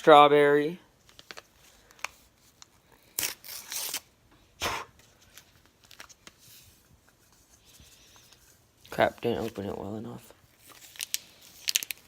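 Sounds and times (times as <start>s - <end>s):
packet crinkling: 1.0s - 4.1s, 5.2s - 6.4s, 8.2s - 12.0s
packet tearing: 3.0s - 4.1s, 10.7s - 12.0s.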